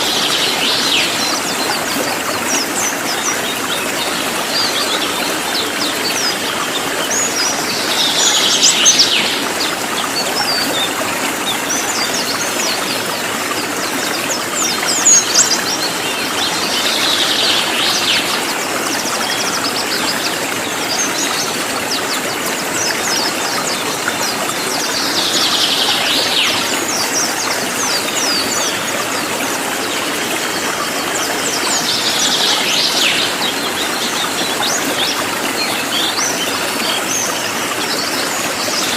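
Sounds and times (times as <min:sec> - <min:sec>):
songbird singing: 0:02.6 - 0:12.4.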